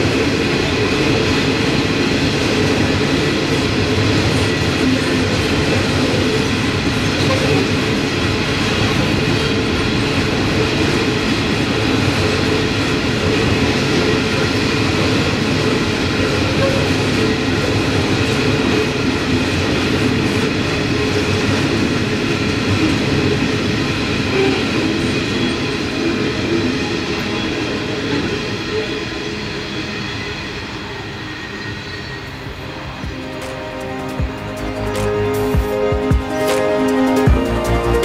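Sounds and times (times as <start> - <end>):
train wheels rumbling on rails: 0.0 - 38.0
faint high squeal: 28.7 - 33.0.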